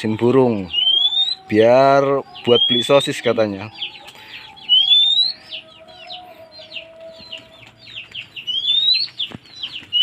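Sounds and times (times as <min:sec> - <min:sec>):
rising bird whistle: 0:00.0 - 0:07.6, 0:08.4 - 0:09.3.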